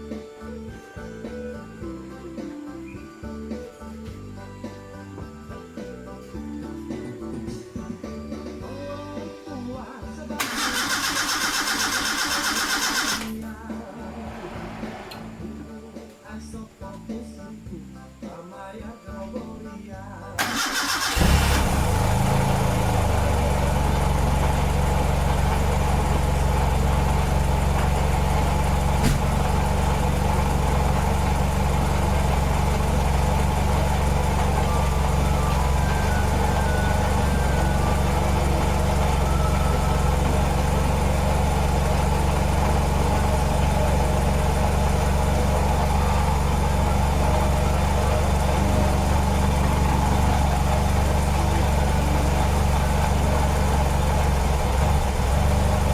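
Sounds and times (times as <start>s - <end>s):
car engine idling: 10.4s - 17.1s, 20.4s - 55.9s.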